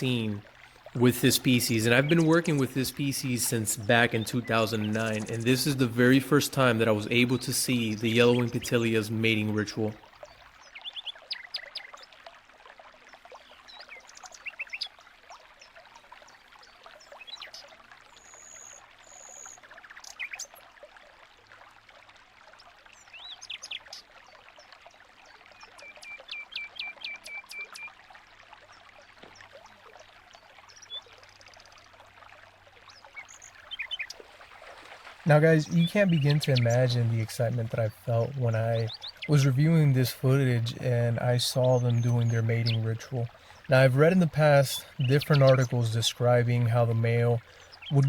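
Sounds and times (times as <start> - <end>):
finches chirping: 0.0 - 8.8, 35.3 - 48.0
trickle of running water: 0.0 - 48.0.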